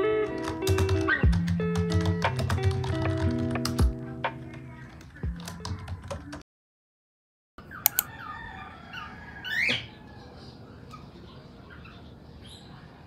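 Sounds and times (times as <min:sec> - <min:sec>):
small birds chirping: 0:07.6 - 0:13.0
sharp clicks: 0:07.8 - 0:08.1.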